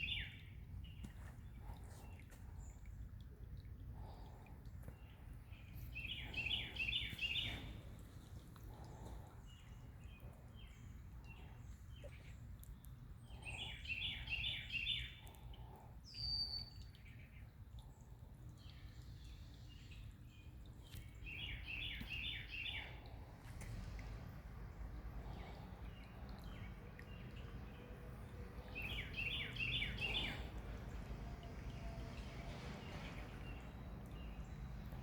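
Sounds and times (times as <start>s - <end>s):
bird chirping: 4.9s - 8.0s, 18.6s - 23.2s, 25.2s - 35.0s
low outdoor rumble: 22.8s - 35.0s.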